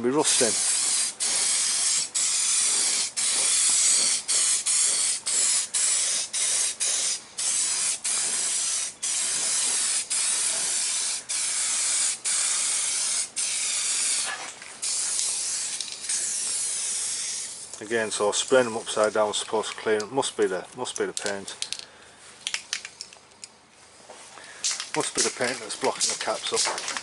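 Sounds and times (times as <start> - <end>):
aerosol can spraying bursts: 0.3 - 17.7.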